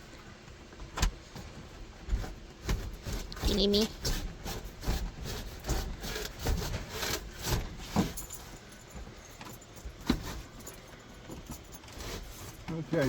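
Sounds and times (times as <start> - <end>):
knocks and scrapes in wooden cabinet: 2.0 - 8.5.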